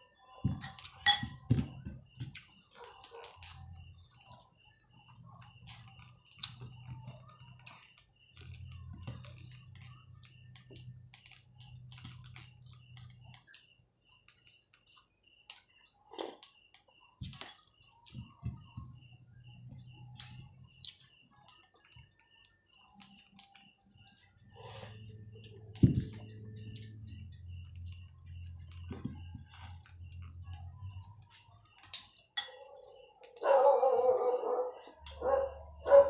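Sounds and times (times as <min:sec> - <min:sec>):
person chewing food: 0:05.2 - 0:13.7, 0:14.3 - 0:18.8, 0:20.2 - 0:32.4.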